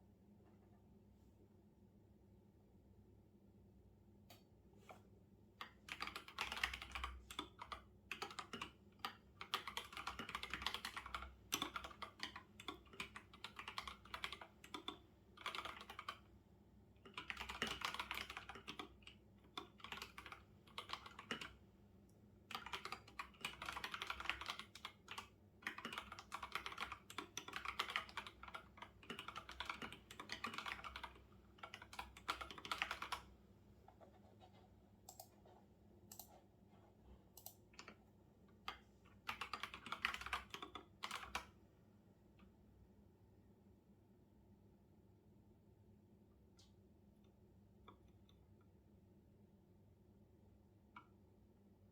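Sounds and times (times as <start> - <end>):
typing on computer keyboard: 5.6 - 16.2, 17.0 - 21.6, 22.5 - 33.3, 38.7 - 41.6.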